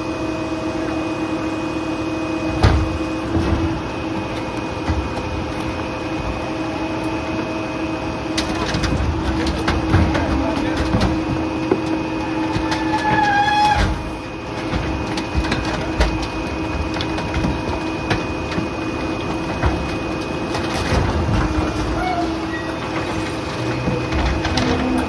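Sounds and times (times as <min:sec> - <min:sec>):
garbage truck mechanical whine: 0:00.0 - 0:25.0
debris knocking and clattering: 0:08.4 - 0:25.0
brief squeal: 0:21.8 - 0:22.8.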